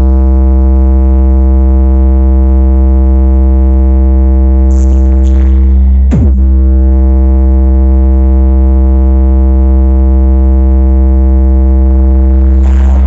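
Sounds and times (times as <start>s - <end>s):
electronic music with deep bass: 0.0s - 1.2s, 4.4s - 9.4s, 11.4s - 13.0s.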